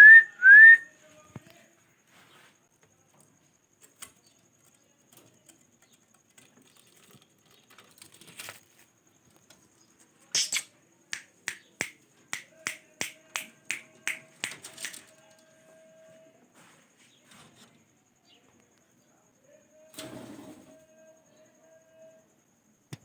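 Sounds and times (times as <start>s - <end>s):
sharp dry clicks: 10.3s - 15.1s
faint steady tone: 15.0s - 22.9s.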